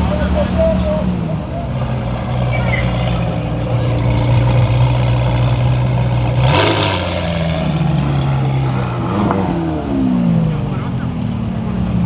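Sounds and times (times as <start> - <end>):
car engines running: 0.0 - 12.0
engine revving blast: 6.3 - 10.5.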